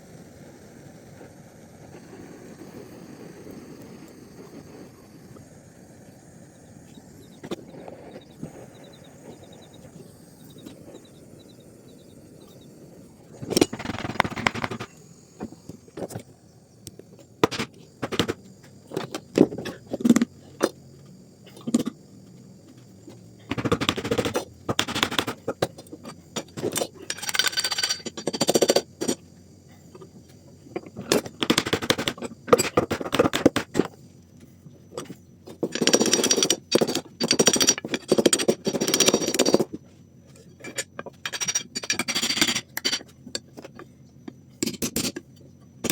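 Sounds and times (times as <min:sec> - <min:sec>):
rapid knocking and scraping: 0:13.4 - 0:16.3, 0:17.1 - 0:20.8, 0:22.6 - 0:29.2, 0:30.7 - 0:34.0, 0:34.9 - 0:43.8.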